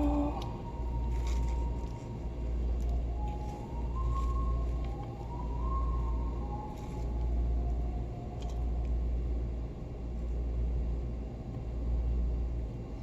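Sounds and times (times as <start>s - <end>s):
faint wavering tone: 0.0s - 9.2s
steady low rumble: 0.0s - 13.0s.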